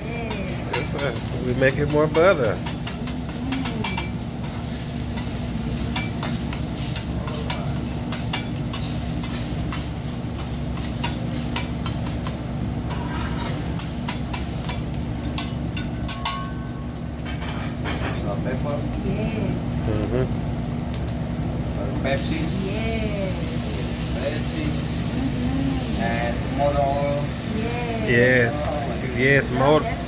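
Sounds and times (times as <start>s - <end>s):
rice sizzling on a griddle: 0.0s - 30.0s
metal spatulas clicking and scraping: 0.3s - 4.6s.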